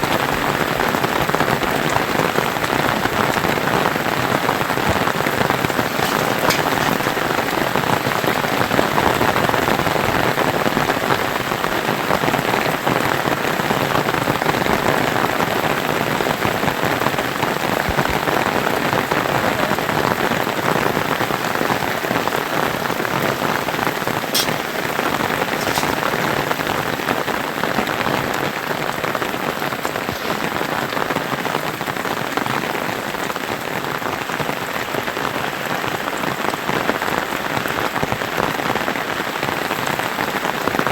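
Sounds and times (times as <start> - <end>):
heavy rain falling: 0.0 - 40.9
water drip ticks: 5.6 - 7.5, 24.3 - 26.4.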